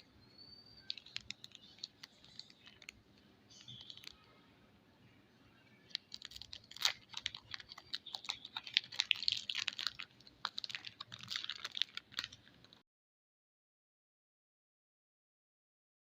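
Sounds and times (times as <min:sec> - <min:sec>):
wrapper crinkling: 0:00.8 - 0:04.3, 0:05.8 - 0:12.8.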